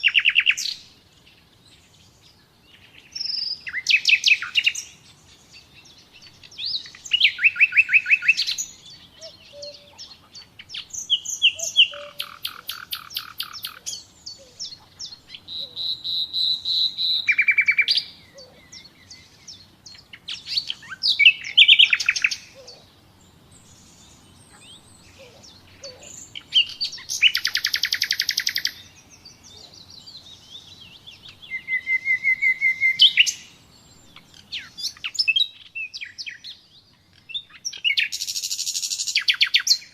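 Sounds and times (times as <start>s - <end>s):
nightingale singing: 0.0s - 39.9s
soft bird twittering: 0.0s - 39.9s.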